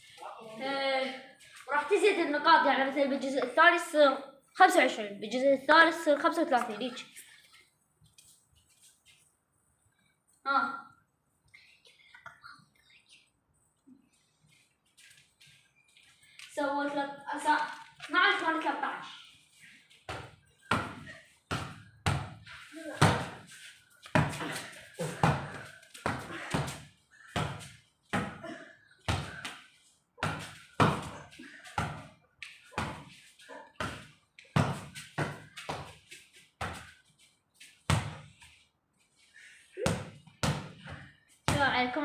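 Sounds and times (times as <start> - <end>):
ball bouncing: 20.0 - 28.4, 29.0 - 33.2, 33.8 - 36.9, 37.8 - 38.4, 39.8 - 41.8.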